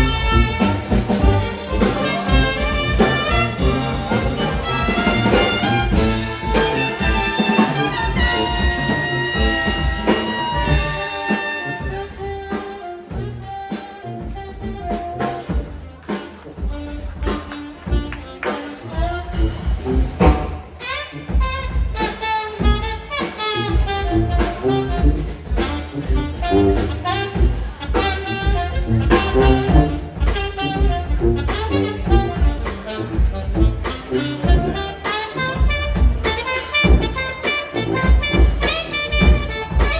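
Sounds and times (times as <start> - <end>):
loud drum hit: 0.0 - 12.5
brass band playing jazz: 0.0 - 39.9.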